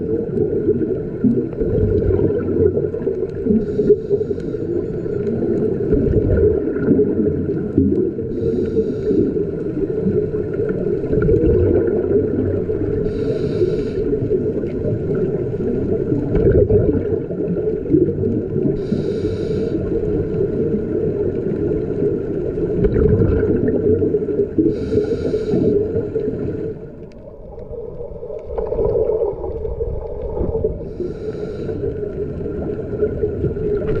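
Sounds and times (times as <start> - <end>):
underwater rumble and bubbles: 0.0 - 34.0
regulator hiss: 3.6 - 4.7, 8.3 - 9.4, 13.0 - 14.3, 18.8 - 20.0, 24.6 - 26.8, 30.9 - 32.0.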